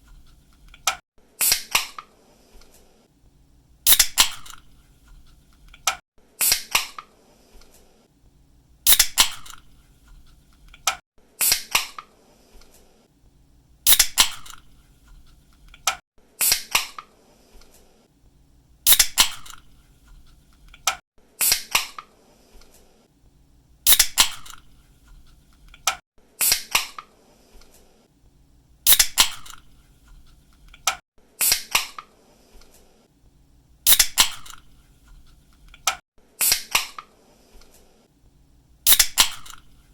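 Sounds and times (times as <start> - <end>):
drink can opening pop and hiss: 3.9 - 4.7, 8.9 - 9.7, 13.9 - 14.7, 18.9 - 19.7, 23.9 - 24.7, 28.9 - 29.7, 33.9 - 34.7, 38.9 - 39.7.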